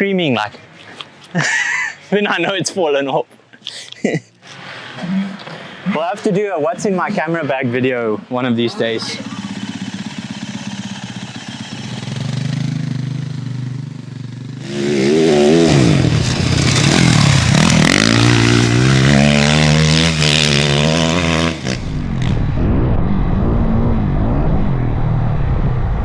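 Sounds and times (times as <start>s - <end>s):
dirt bike engine revving: 8.9s - 13.6s, 14.5s - 22.4s.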